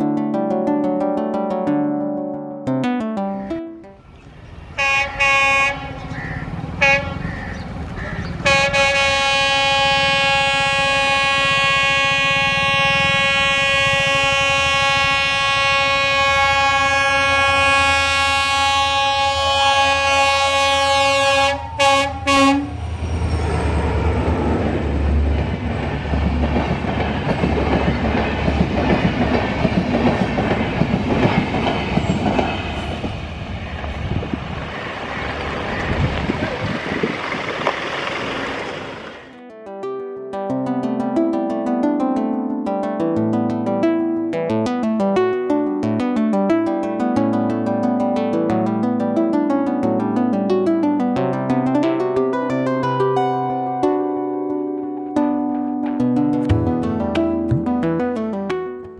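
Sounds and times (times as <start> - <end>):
train rumbling past: 4.0 - 39.4
locomotive horn blasts: 4.8 - 23.3
wheels clattering over rails: 23.0 - 39.3.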